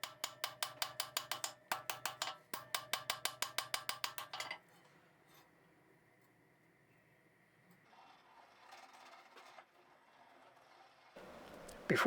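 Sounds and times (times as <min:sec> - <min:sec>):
hammer striking steel on anvil: 0:00.0 - 0:04.6.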